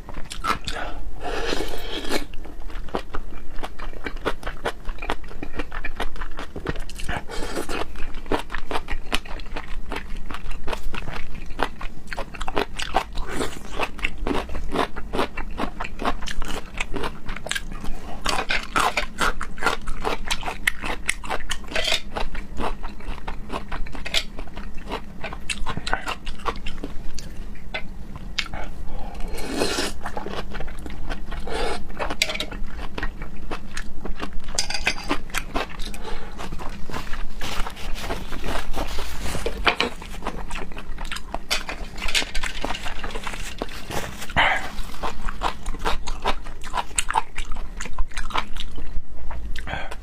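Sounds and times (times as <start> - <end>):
close-miked chewing: 2.0 - 50.0.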